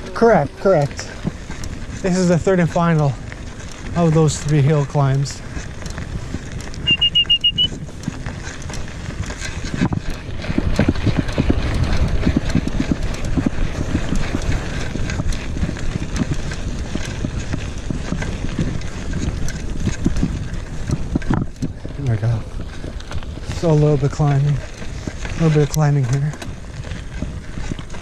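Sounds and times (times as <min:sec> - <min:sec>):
bike tyres rumbling over dirt: 0:00.0 - 0:28.0
wind on microphone: 0:05.4 - 0:25.4
short high pips: 0:06.9 - 0:07.7.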